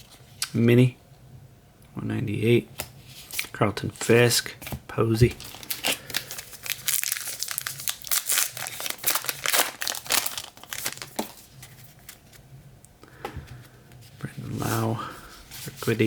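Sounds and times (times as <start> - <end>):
card pack wrapper crinkling: 5.3 - 12.4.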